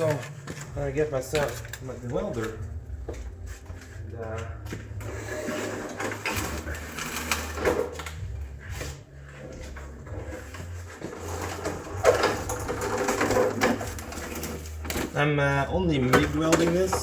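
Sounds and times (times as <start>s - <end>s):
equipment knocking and clattering: 10.2s - 15.2s, 15.8s - 17.0s.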